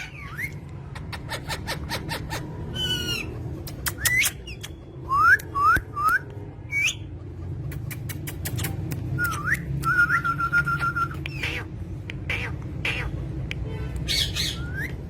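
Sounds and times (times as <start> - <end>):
sharp clicks: 3.6 - 6.4, 7.7 - 10.0.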